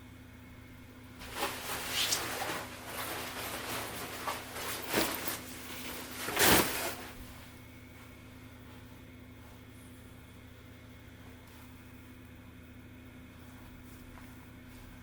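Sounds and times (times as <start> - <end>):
fabric rustling: 1.2 - 7.5.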